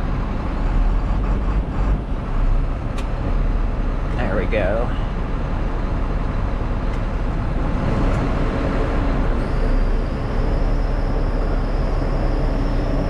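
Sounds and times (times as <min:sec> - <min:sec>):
truck engine running: 0:00.0 - 0:13.0
hydraulic hoist whine: 0:09.2 - 0:13.0.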